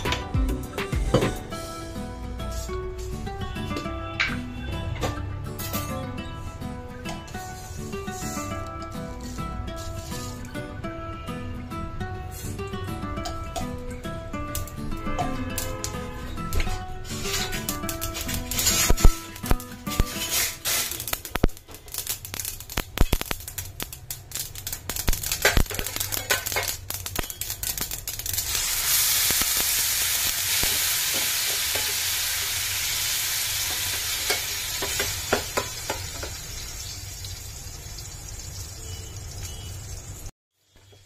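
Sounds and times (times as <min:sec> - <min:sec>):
spatula scraping a pan: 0:07.3 - 0:10.5, 0:16.6 - 0:21.2
paste sizzling in oil: 0:17.0 - 0:40.3
seeds crackling in hot oil: 0:17.0 - 0:41.0.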